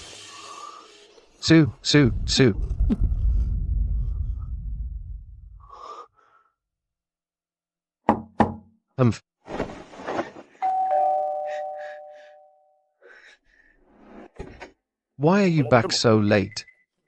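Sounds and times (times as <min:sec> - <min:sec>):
knocks on a door: 0:08.1 - 0:08.7
ding-dong doorbell chime: 0:10.6 - 0:12.8.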